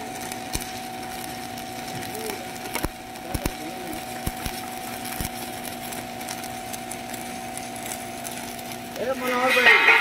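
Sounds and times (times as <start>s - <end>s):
sharp welding pops: 0.0s - 10.0s
steady low hum: 0.0s - 10.0s
welding arc crackling: 0.0s - 10.0s.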